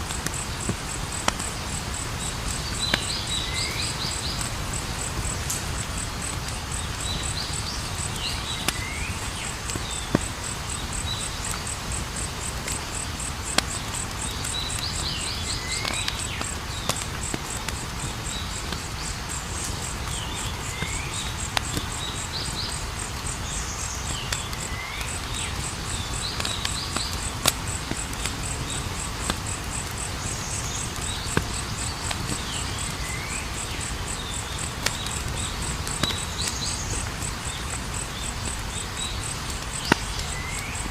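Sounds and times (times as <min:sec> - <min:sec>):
campfire crackling and popping: 0:00.0 - 0:40.9
insects chirping: 0:00.0 - 0:40.9.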